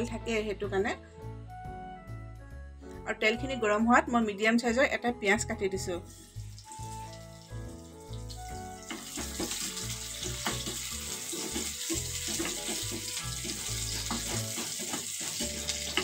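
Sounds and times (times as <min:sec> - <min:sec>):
onions sizzling in hot oil: 0:06.0 - 0:16.0
wooden spatula scraping a pan: 0:10.4 - 0:16.0.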